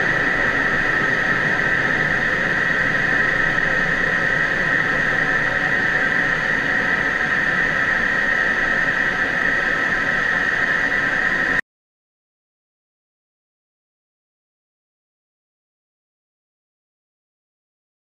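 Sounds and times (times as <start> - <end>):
jet cockpit rushing hiss: 0.0 - 11.6.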